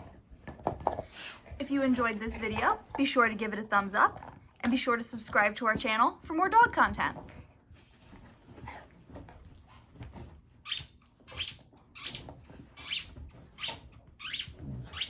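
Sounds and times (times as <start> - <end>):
squeaky dog toy squeaks: 10.6 - 15.0.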